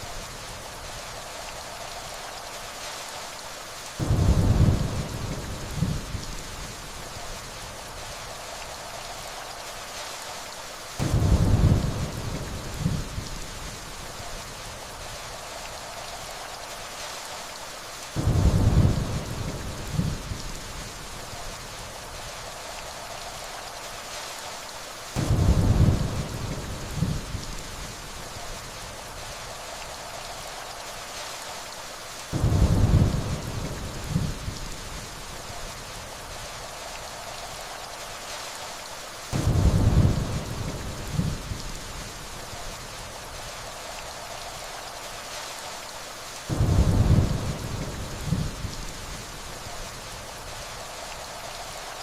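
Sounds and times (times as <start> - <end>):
steady rainfall: 0.0 - 52.0
thunder rumble: 4.0 - 6.3, 11.0 - 13.3, 18.2 - 20.5, 25.2 - 27.5, 32.3 - 35.0, 39.3 - 41.7, 46.5 - 49.2.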